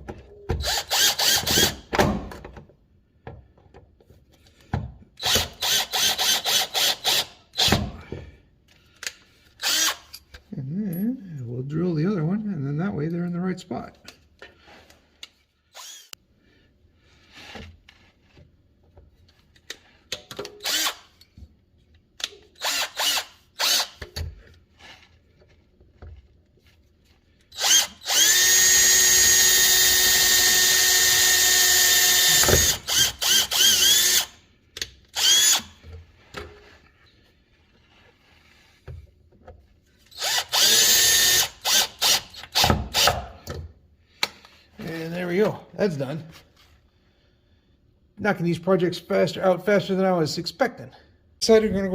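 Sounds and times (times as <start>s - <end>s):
power drill drilling: 0.6s - 1.8s, 5.2s - 7.8s, 9.6s - 10.1s, 15.7s - 16.2s, 20.6s - 21.1s, 22.6s - 24.0s, 27.5s - 34.4s, 35.1s - 35.8s, 40.1s - 43.2s.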